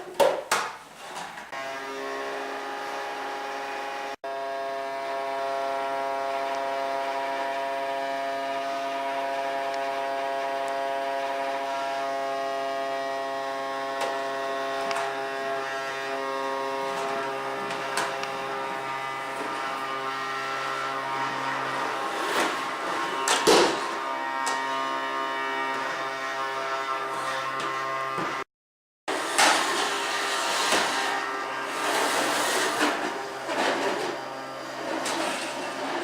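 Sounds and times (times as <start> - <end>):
vacuum cleaner motor humming: 1.6 - 28.4, 29.1 - 36.0.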